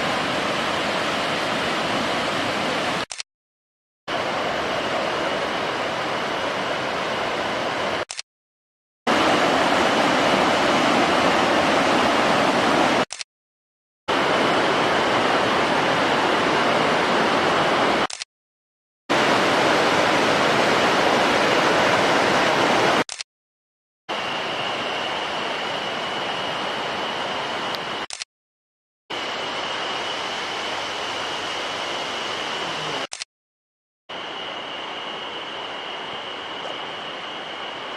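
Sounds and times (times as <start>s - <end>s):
mountain stream rushing: 0.0s - 3.1s, 4.1s - 8.1s, 9.1s - 13.1s, 14.1s - 18.1s, 19.1s - 23.0s, 24.1s - 28.1s.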